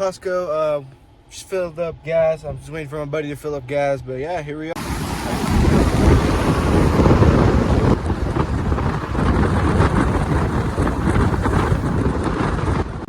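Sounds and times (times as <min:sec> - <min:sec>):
wind buffeting microphone: 0:04.8 - 0:13.0.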